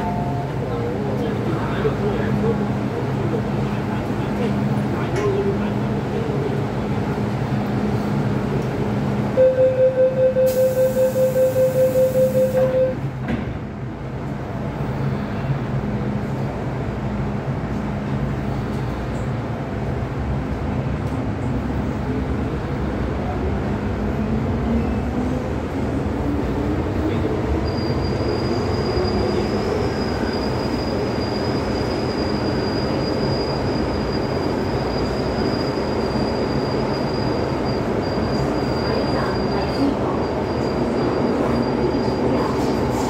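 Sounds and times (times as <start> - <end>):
train wheels and motors rumbling: 12.1 - 43.0.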